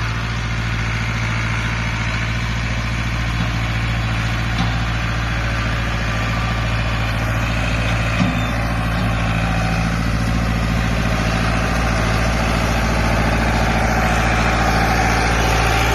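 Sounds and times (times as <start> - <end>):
tractor engine idling: 0.0 - 15.9.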